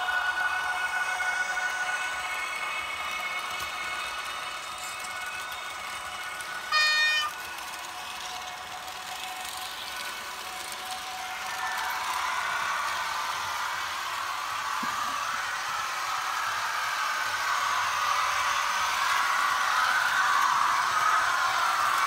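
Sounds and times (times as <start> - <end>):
model train rolling and whirring: 0.0 - 22.0.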